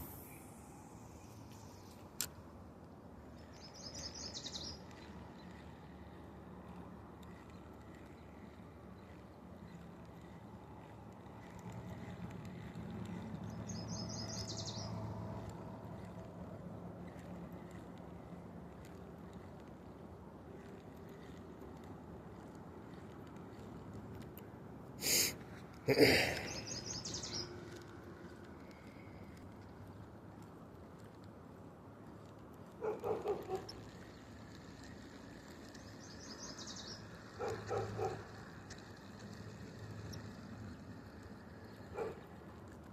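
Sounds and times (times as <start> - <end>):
songbird trilling song: 3.4 - 5.8, 13.1 - 15.6, 26.4 - 27.7, 35.8 - 38.2.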